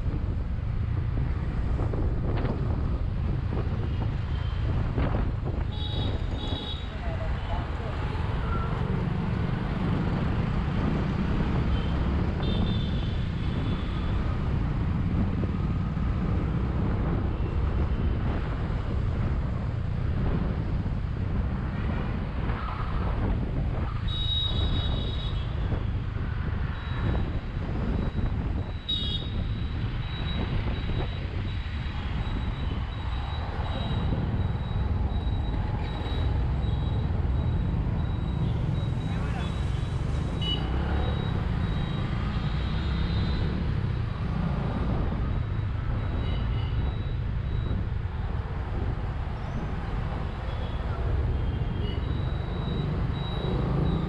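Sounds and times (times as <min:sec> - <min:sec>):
low wind rumble: 0:00.0 - 0:39.1
motorcycle engine and road noise: 0:00.0 - 0:54.0.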